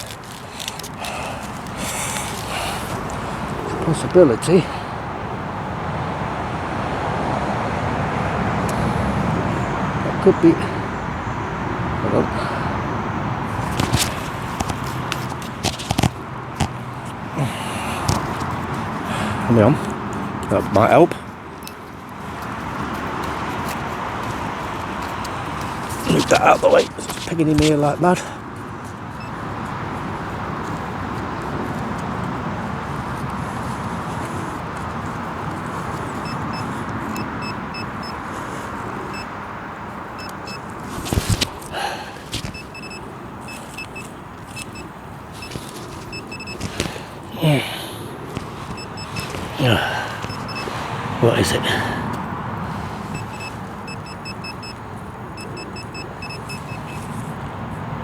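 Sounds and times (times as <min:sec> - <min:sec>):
metal detector beeps: 0:29.2 - 0:29.4, 0:36.0 - 0:38.2, 0:39.1 - 0:39.4, 0:40.1 - 0:41.4, 0:42.4 - 0:46.9, 0:48.6 - 0:50.8, 0:53.1 - 0:57.2.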